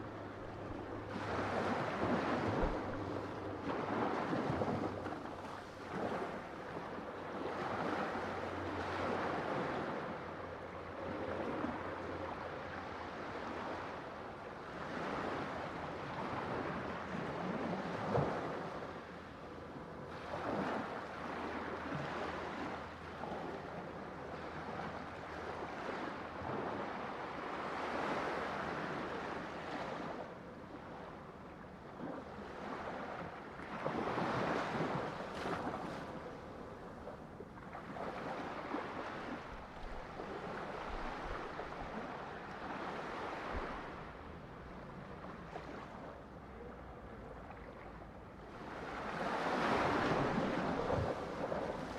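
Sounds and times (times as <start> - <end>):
ocean waves breaking: 0.0 - 19.3, 31.9 - 46.9, 48.5 - 51.9.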